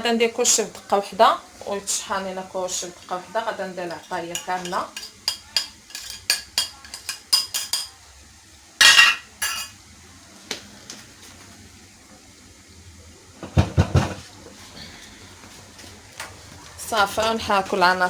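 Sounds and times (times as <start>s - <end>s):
metal utensils clinking: 3.8s - 8.0s, 8.8s - 9.8s.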